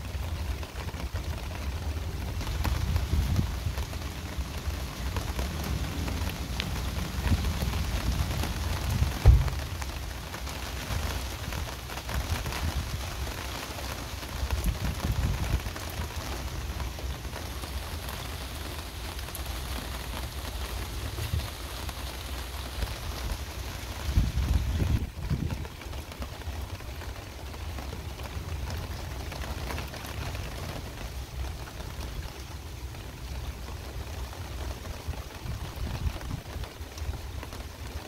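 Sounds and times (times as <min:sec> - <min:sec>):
heavy rain pattering: 0:00.0 - 0:38.0
low thunder rumbling: 0:02.5 - 0:10.4
sharp low thump: 0:09.0 - 0:09.9.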